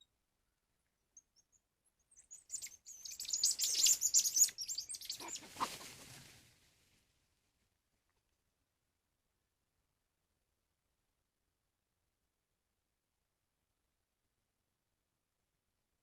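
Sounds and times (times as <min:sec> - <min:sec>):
birds chirping: 0:01.2 - 0:06.2.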